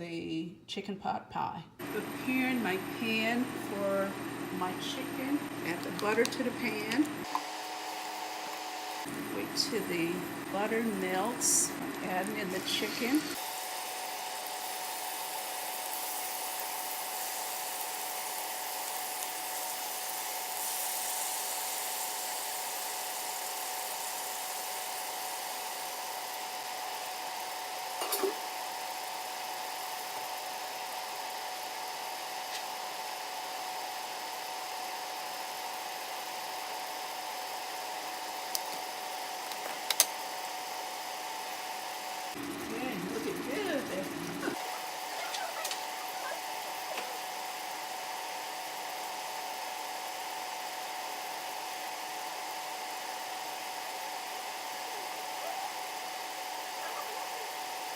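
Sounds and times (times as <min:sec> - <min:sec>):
chicken sizzling in a frying pan: 0:07.3 - 0:09.4, 0:10.2 - 0:43.8, 0:44.5 - 0:57.9
constant high hum: 0:42.6 - 0:47.3.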